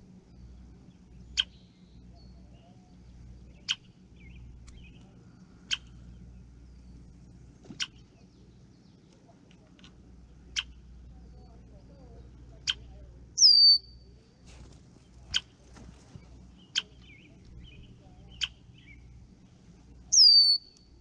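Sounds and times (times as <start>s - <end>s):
faint bird twittering: 0.1s - 21.0s
bird chip calls: 1.2s - 2.8s, 3.4s - 7.0s, 7.6s - 9.2s, 10.4s - 14.0s, 16.4s - 19.2s, 20.1s - 21.0s.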